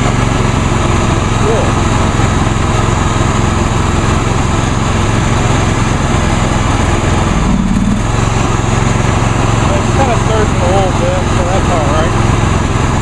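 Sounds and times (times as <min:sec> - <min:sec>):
lawn tractor engine running: 0:00.0 - 0:13.0
person talking: 0:01.4 - 0:01.8, 0:09.7 - 0:12.2.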